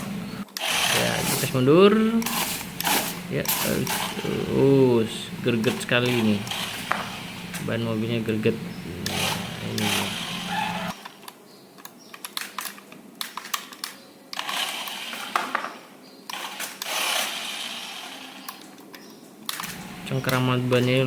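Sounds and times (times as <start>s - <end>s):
toy car motor whirring: 0.5s - 1.6s, 2.2s - 4.8s, 5.6s - 7.8s, 8.8s - 11.0s, 14.4s - 18.8s
clicks: 18.5s - 20.9s.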